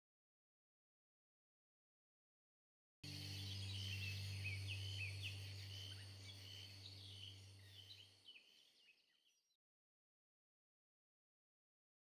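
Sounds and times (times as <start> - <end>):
low hum: 3.0 - 8.1
small birds chirping: 3.1 - 9.6.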